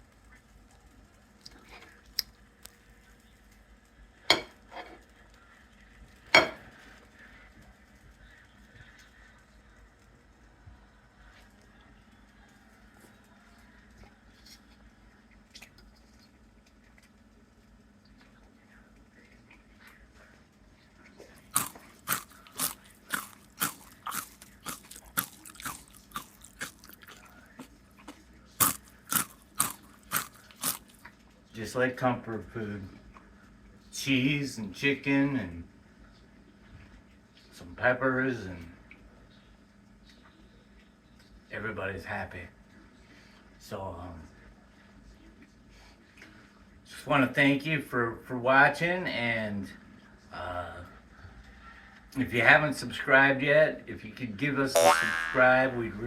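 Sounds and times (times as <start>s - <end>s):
person chewing crunchy food: 21.3s - 31.2s.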